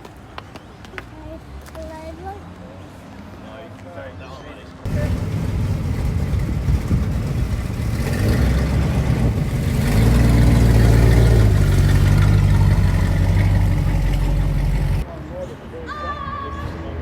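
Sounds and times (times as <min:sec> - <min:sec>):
car engine revving: 0:04.9 - 0:15.0.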